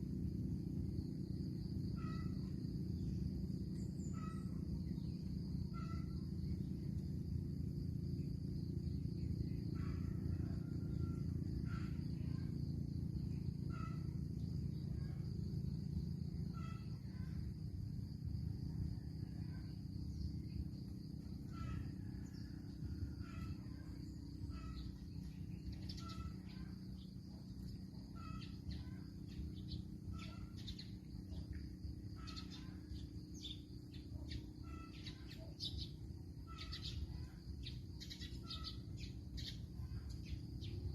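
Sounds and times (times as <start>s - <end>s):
steady low rumble: 0.0s - 40.9s
birds chirping high: 21.4s - 40.9s.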